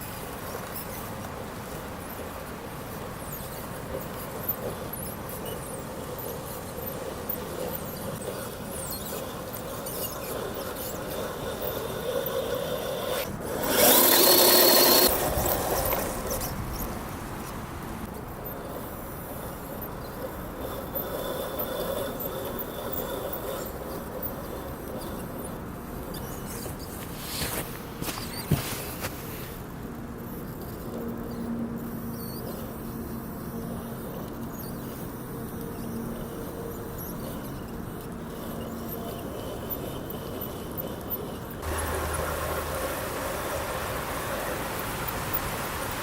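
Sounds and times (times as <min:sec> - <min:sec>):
rc car motor whining: 0:02.9 - 0:46.0
steady hum: 0:35.7 - 0:46.0.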